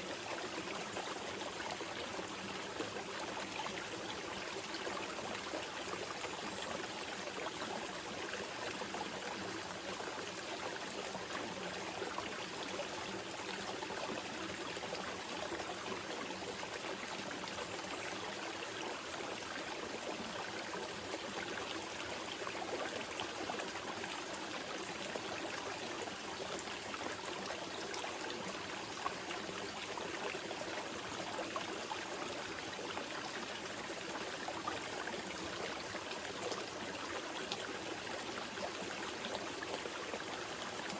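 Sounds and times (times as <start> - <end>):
river water flowing: 11.7 - 40.9.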